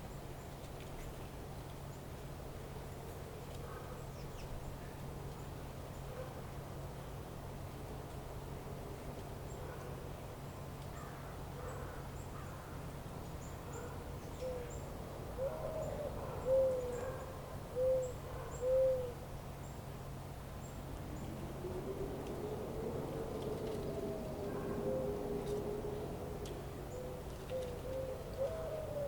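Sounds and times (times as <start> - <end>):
bird hooting calls: 13.7 - 14.8, 15.4 - 19.2, 21.0 - 29.0
steady low hum: 17.2 - 29.0.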